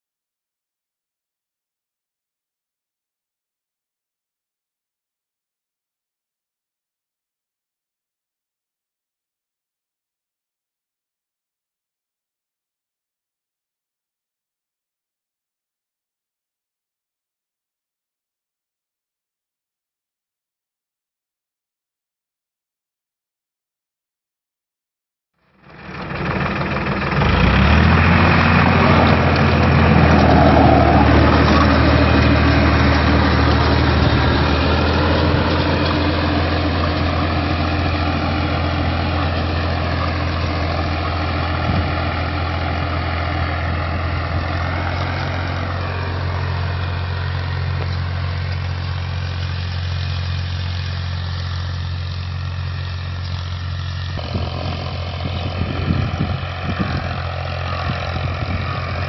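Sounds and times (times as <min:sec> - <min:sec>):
tractor engine running: 0:25.5 - 0:59.0.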